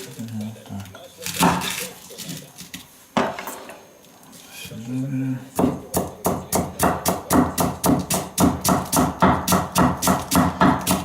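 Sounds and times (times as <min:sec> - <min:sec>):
knife chopping on wooden board: 0:01.4 - 0:01.7, 0:05.6 - 0:11.0.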